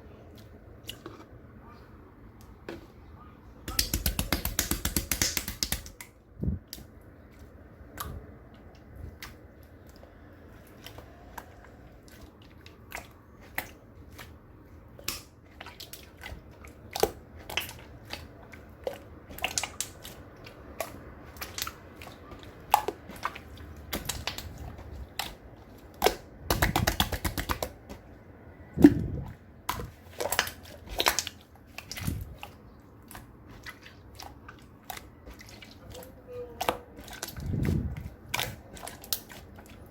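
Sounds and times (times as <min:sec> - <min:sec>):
slime clicking and popping: 0:03.7 - 0:06.1, 0:26.0 - 0:27.7.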